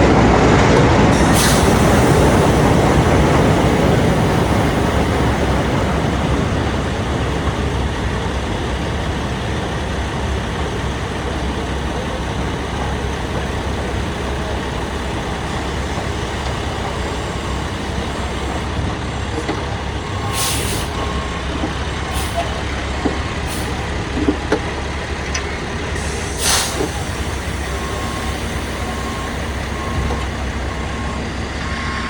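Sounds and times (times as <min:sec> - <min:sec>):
trucks and machinery rumbling: 0:00.0 - 0:32.0
air hissing: 0:01.1 - 0:18.7, 0:20.2 - 0:21.1, 0:22.0 - 0:22.7, 0:25.9 - 0:30.9.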